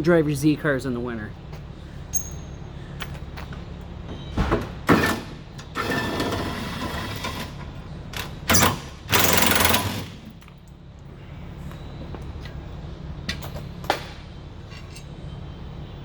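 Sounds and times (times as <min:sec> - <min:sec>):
power tool rattling bursts: 0:08.5 - 0:10.3.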